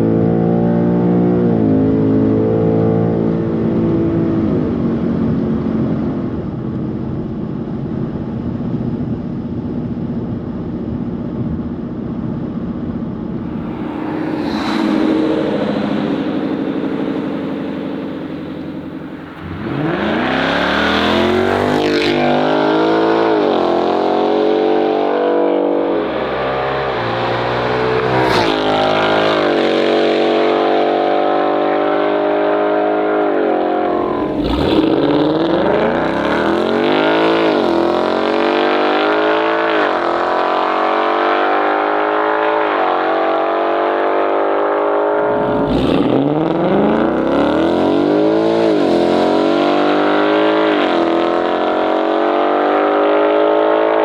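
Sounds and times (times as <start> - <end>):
car engine accelerating hard: 12.4 - 54.0.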